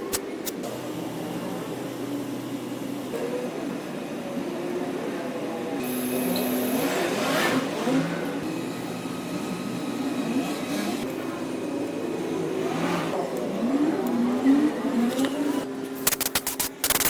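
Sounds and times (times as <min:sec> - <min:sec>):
diesel engine revving: 0:05.8 - 0:11.1, 0:11.9 - 0:15.7.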